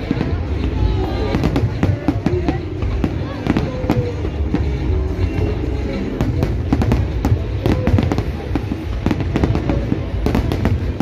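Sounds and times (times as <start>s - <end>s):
fireworks bursting: 0.0s - 11.0s
music playing: 0.0s - 11.0s.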